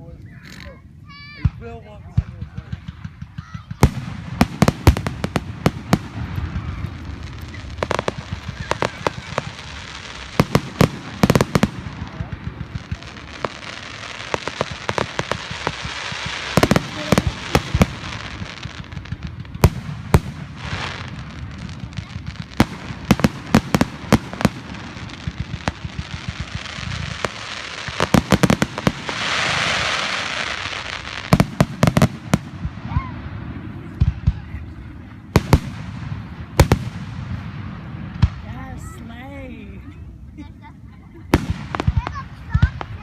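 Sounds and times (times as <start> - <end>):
firework crackle: 0.4 - 43.0
firework bangs: 1.2 - 39.0, 41.1 - 43.0
firework hissing burst: 3.8 - 33.8.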